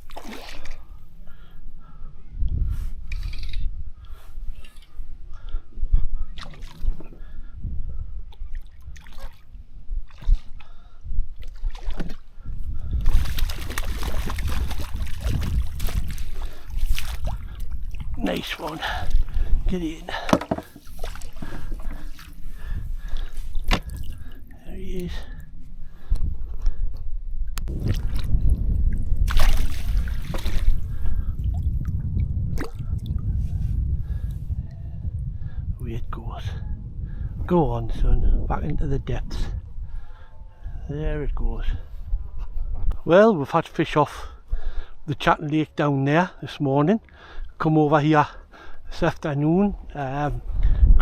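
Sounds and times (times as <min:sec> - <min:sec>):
water splashing and sloshing: 0:00.0 - 0:01.0, 0:06.3 - 0:07.2, 0:08.3 - 0:24.6, 0:27.7 - 0:33.2
water dripping and splashing: 0:13.0 - 0:19.5, 0:20.8 - 0:22.4, 0:28.9 - 0:30.8
low rumble: 0:25.4 - 0:40.9.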